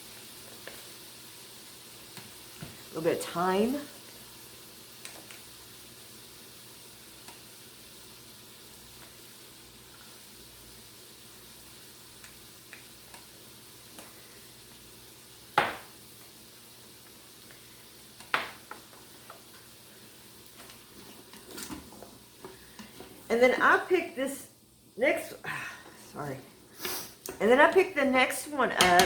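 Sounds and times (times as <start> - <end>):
vegetables sizzling in fat: 0.0 - 29.0.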